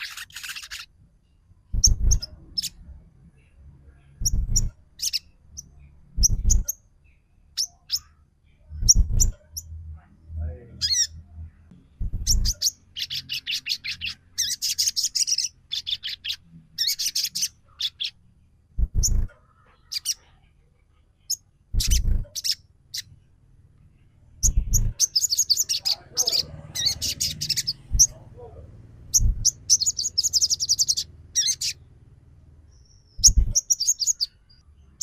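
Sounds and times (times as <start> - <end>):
bird sharp chirps: 0.0 - 2.8, 4.1 - 9.8, 12.0 - 18.2, 21.2 - 23.1, 24.4 - 31.9, 32.7 - 34.6
dull low thumps: 1.7 - 2.3, 4.2 - 4.8, 6.1 - 6.7, 8.8 - 9.4, 11.8 - 12.6, 18.7 - 19.3, 21.7 - 22.3, 24.4 - 25.0, 27.8 - 28.2, 29.1 - 29.7.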